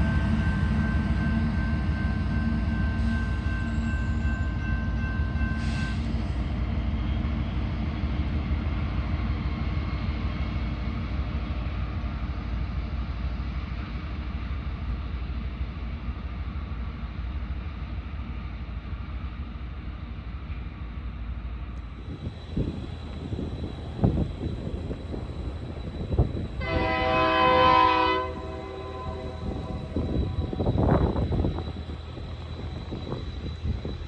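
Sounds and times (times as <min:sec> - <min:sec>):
train cars rolling on rails: 0:18.2 - 0:34.0
thin whine in wheels: 0:21.9 - 0:34.0.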